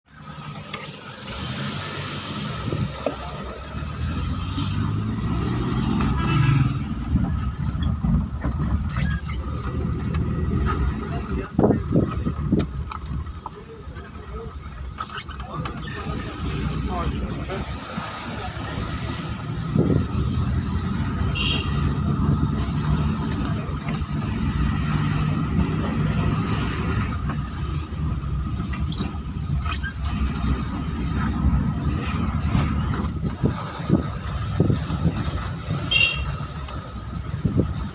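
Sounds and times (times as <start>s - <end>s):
vehicle engine and road rumble: 0.0s - 37.9s
short high-pitched squeaks: 0.7s - 1.8s, 4.5s - 6.7s, 8.8s - 11.7s, 14.9s - 16.7s, 26.8s - 27.8s, 28.8s - 31.4s, 32.8s - 34.4s.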